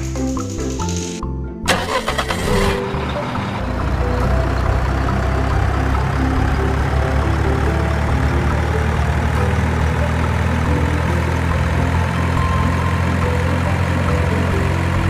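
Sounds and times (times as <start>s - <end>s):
marbles rolling on wooden tracks: 0.0s - 1.2s.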